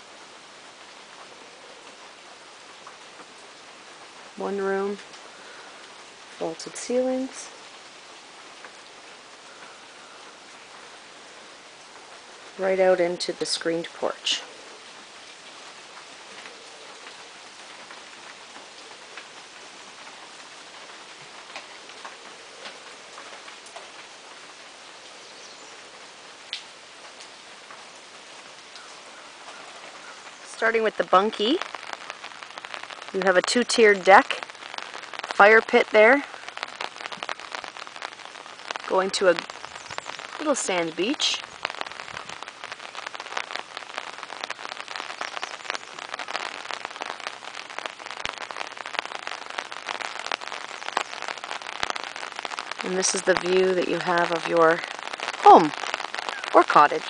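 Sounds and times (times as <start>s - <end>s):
raindrops ticking on surfaces: 0.0s - 57.0s
steady rain falling: 0.0s - 57.0s.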